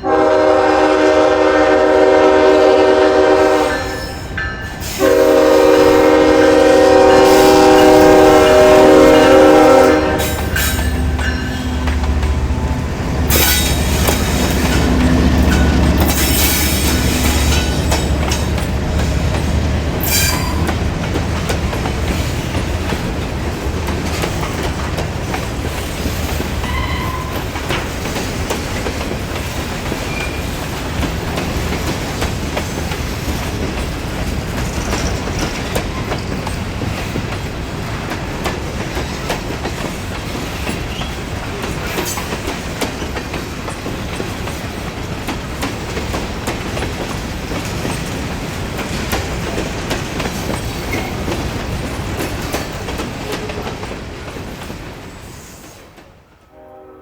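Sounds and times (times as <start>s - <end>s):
freight train cars clattering: 0.0s - 56.8s
high wheel squeals: 9.2s - 18.8s, 20.0s - 20.8s, 26.6s - 27.5s.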